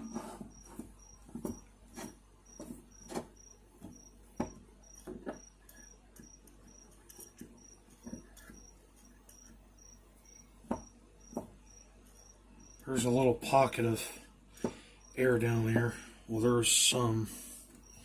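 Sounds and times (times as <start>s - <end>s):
cricket chirping: 0.1s - 13.1s, 14.6s - 15.4s, 17.8s - 18.0s.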